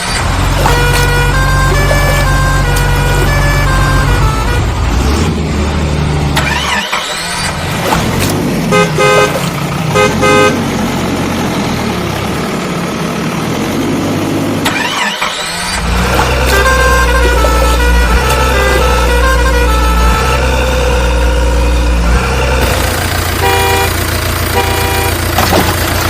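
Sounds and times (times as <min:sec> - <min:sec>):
low engine rumble: 0:00.0 - 0:06.7, 0:15.7 - 0:26.0
short horn beeps: 0:00.6 - 0:05.0, 0:16.4 - 0:21.2, 0:23.4 - 0:25.3.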